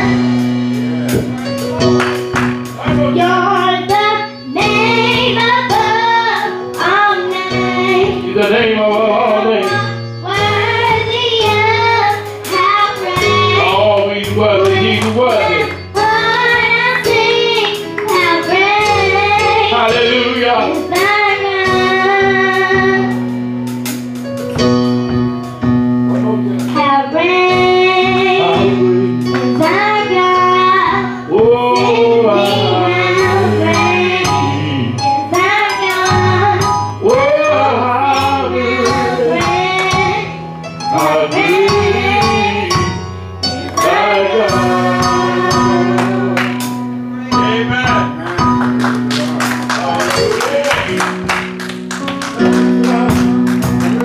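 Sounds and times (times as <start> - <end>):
percussion beat: 0.0 - 27.0, 31.4 - 54.0
instrumental accompaniment: 0.0 - 54.0
women singing gospel: 3.2 - 23.2, 26.8 - 46.7.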